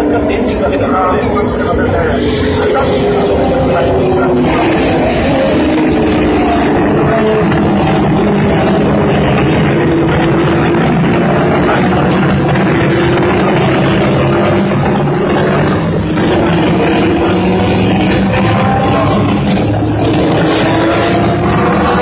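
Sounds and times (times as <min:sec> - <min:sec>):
racing car engines at high revs: 0:00.0 - 0:22.0.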